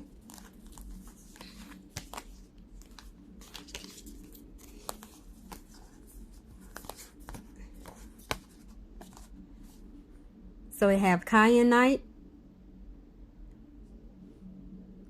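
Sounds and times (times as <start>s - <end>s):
cards being shuffled: 0.0s - 9.3s.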